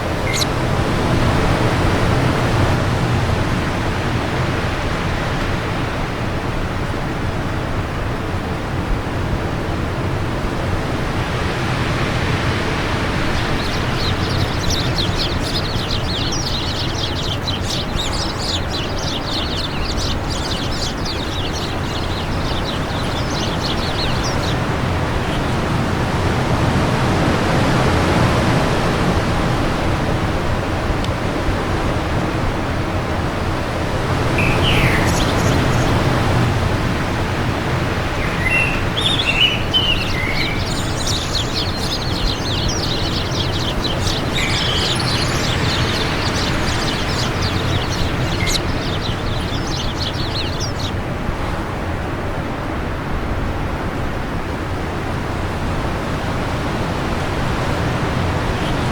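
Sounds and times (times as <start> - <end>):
birds chirping: 0.0 - 3.1, 11.1 - 28.9, 33.7 - 51.8, 57.4 - 58.9
wind blowing: 0.0 - 5.6, 9.9 - 58.9.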